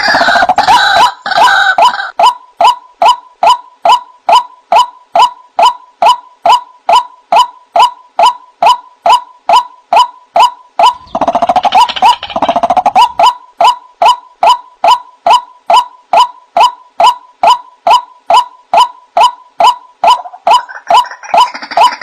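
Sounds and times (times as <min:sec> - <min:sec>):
waterhen calling: 0:20.0 - 0:22.0.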